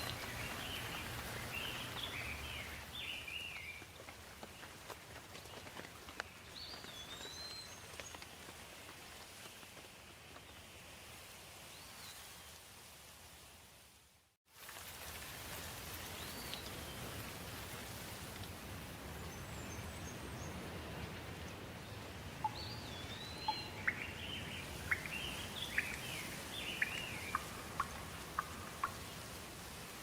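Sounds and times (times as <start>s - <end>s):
birds chirping: 0.0s - 3.8s, 22.4s - 29.2s
steady rain falling: 0.0s - 30.0s.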